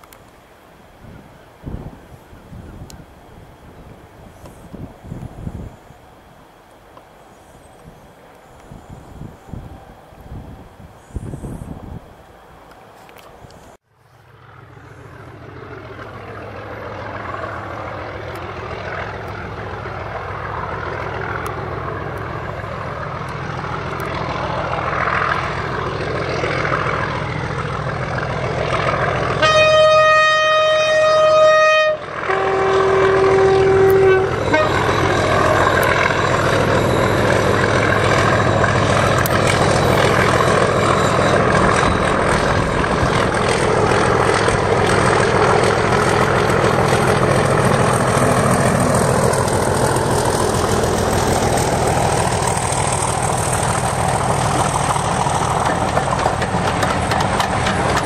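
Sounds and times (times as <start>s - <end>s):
train rumble: 0.0s - 58.0s
two-tone train horn: 29.3s - 41.8s.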